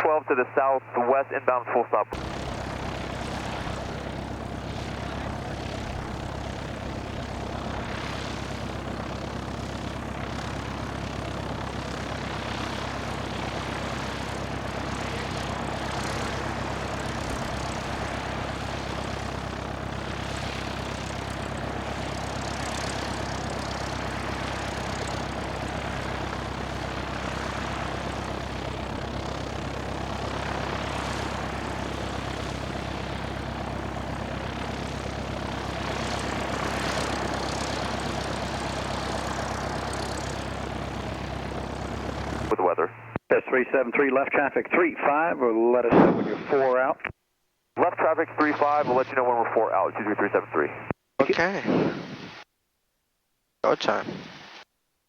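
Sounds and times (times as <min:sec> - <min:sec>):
aircraft engine and propeller: 0:00.0 - 0:47.1, 0:47.8 - 0:52.2.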